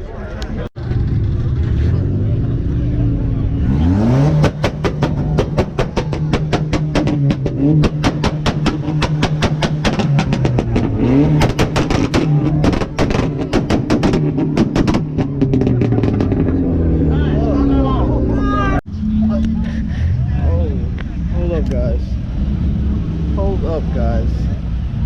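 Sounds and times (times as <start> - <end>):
car engine revving: 0.8 - 25.0
exhaust pops and crackles: 4.2 - 16.7.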